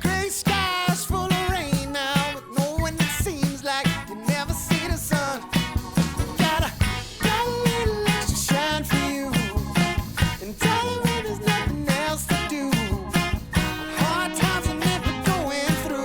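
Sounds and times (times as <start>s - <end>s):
background music with drums and guitar: 0.0s - 16.0s.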